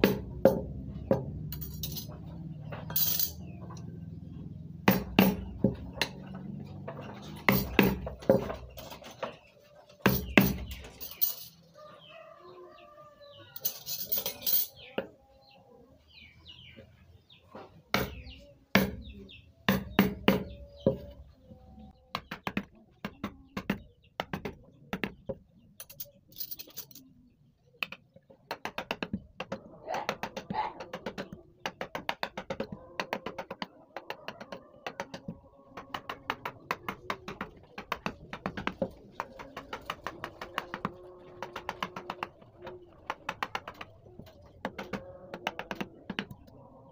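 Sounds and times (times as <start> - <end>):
birds chirping: 0.0 - 46.9
mallet tapping carving chisel: 28.5 - 38.9, 39.5 - 42.4, 44.6 - 46.4.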